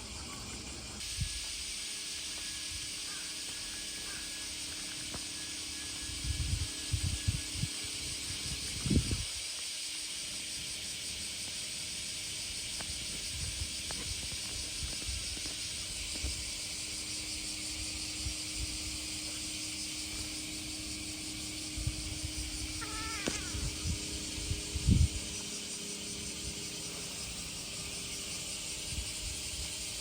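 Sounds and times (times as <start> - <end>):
steady high hiss: 0.0 - 30.0
wind bumps on microphone: 6.2 - 9.4, 21.8 - 25.4.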